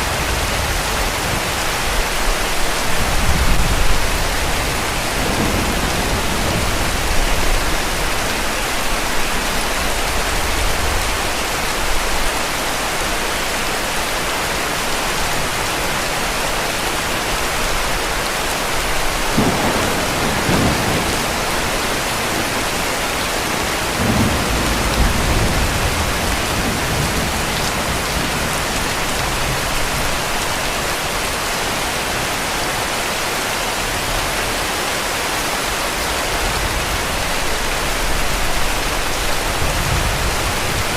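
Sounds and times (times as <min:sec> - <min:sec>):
heavy rain: 0:00.0 - 0:40.9
distant thunder rumbling: 0:03.1 - 0:08.2, 0:19.2 - 0:29.7.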